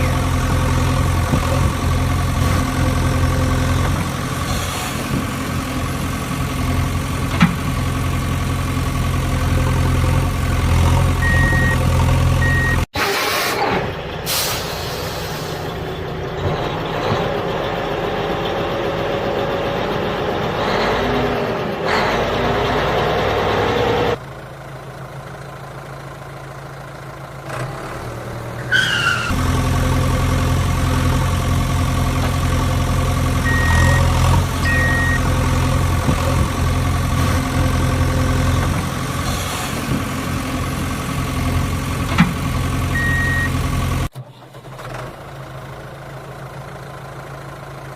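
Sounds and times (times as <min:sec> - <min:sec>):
vehicle engine running: 0:00.0 - 0:12.9, 0:22.4 - 0:28.6, 0:29.3 - 0:47.9
noisy changing vehicle sound: 0:00.0 - 0:47.9
short high beeps: 0:11.2 - 0:11.8, 0:33.5 - 0:35.2, 0:43.0 - 0:43.5.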